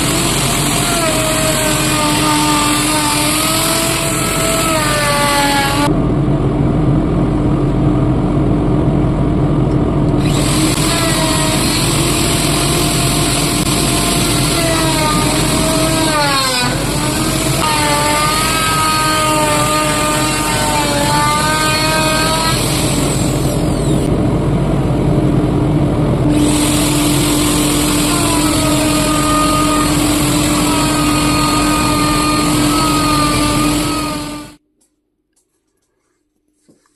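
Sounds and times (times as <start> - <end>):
electric router milling: 0.0 - 5.9, 10.2 - 24.1, 26.2 - 34.6.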